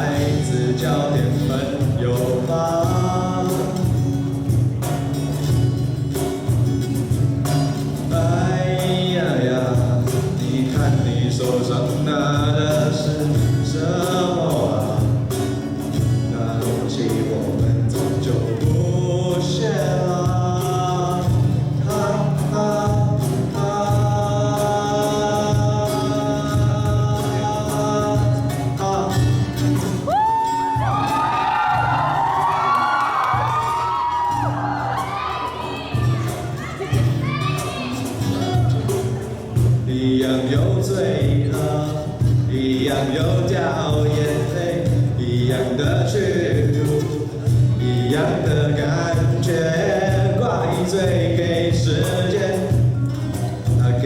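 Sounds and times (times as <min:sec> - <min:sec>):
guitars strumming chords: 0:00.0 - 0:54.0
live rock band with singing: 0:00.0 - 0:54.0
audience whooping and cheering: 0:30.0 - 0:38.7.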